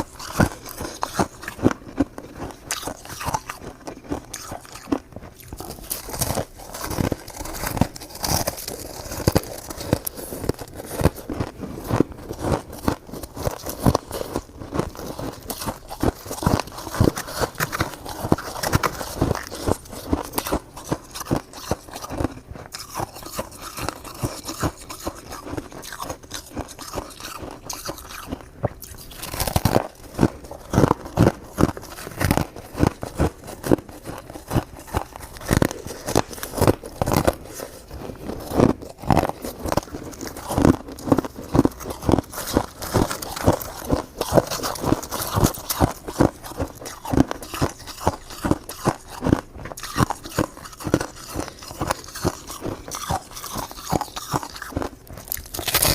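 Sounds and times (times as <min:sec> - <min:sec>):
chewing crunchy ice: 0:00.0 - 0:55.9.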